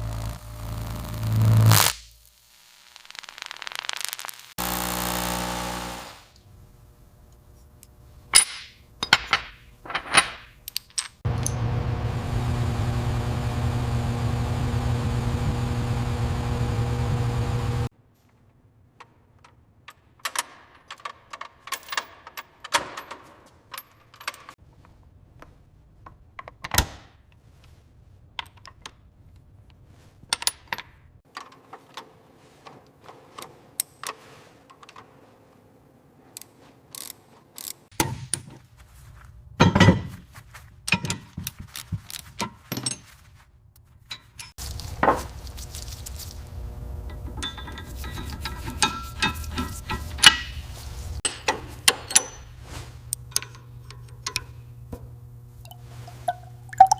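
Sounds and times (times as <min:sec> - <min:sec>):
small electric power tool running: 0:04.3 - 0:06.4, 0:11.3 - 0:17.9
metal tools clinking: 0:08.3 - 0:11.6, 0:44.1 - 0:44.9, 0:47.0 - 0:54.7.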